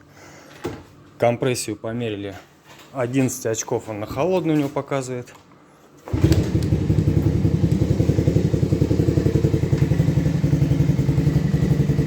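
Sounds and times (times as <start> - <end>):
motorcycle engine idling: 6.1 - 12.0.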